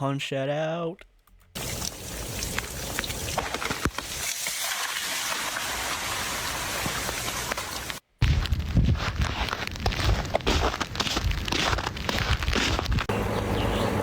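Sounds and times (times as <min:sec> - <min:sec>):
freezing rain falling: 0:01.6 - 0:08.4
ice pellets ticking on ice: 0:06.8 - 0:13.1.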